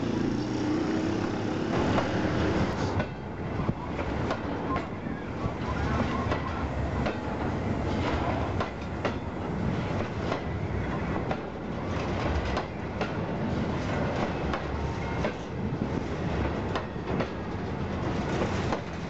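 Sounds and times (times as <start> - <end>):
wheels clacking over rail joints: 0.0 - 5.0, 5.6 - 15.5
train wheels rumbling on rail: 0.0 - 19.0.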